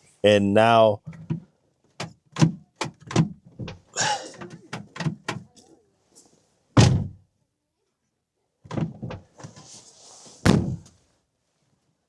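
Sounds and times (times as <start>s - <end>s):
car door thunk: 6.8s - 7.2s.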